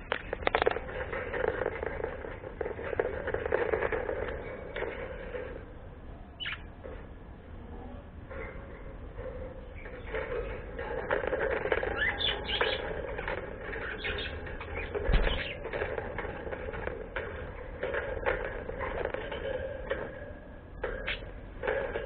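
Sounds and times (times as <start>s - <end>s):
bird chirping: 6.3s - 6.8s, 11.8s - 15.8s.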